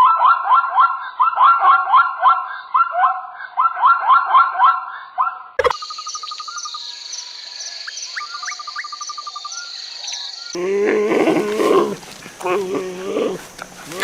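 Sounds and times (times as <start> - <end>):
bird chirping rapidly: 5.6 - 10.6
insects trilling: 5.6 - 14.0.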